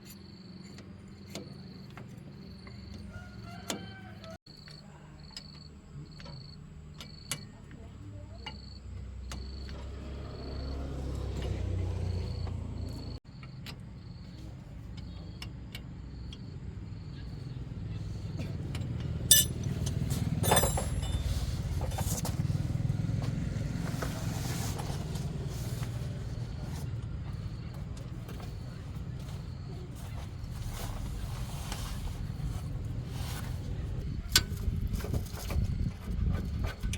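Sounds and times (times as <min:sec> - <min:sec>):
car engine running: 0:08.9 - 0:13.2, 0:13.8 - 0:35.6.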